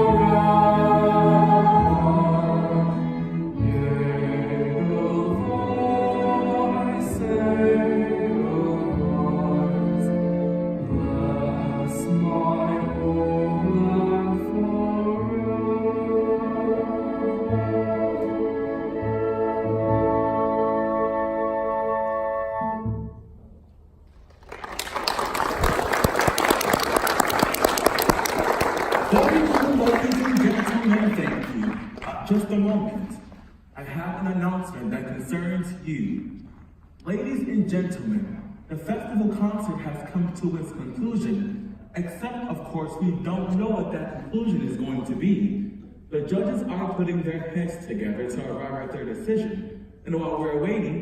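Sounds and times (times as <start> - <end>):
voices singing together: 0.0 - 10.0, 10.9 - 19.6
orchestral music: 0.0 - 36.2
audience applause: 24.3 - 32.3.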